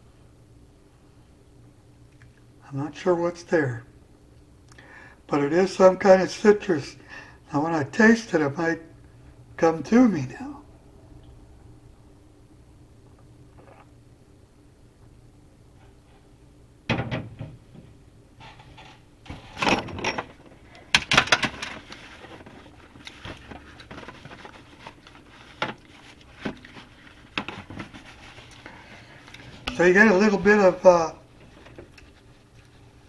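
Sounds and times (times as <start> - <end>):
slurping sips: 13.5 - 14.0.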